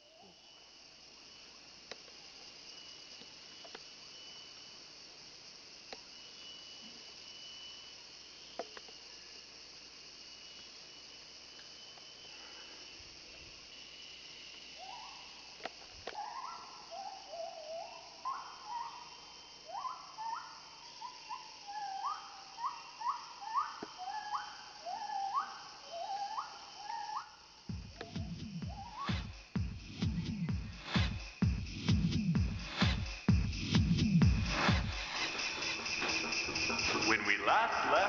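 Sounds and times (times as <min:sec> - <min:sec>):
insects buzzing: 0:00.0 - 0:38.0
loud whooping calls: 0:14.7 - 0:31.4, 0:33.9 - 0:38.0.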